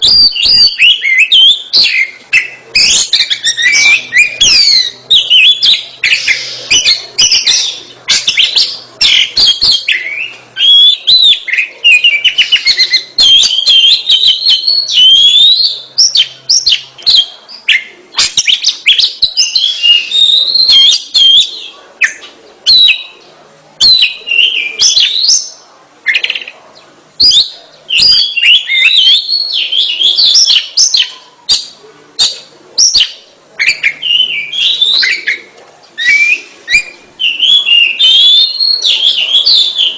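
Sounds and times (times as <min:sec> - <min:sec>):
bird singing whistles and trills: 0:00.0 - 0:23.2, 0:23.8 - 0:26.5, 0:27.2 - 0:39.9.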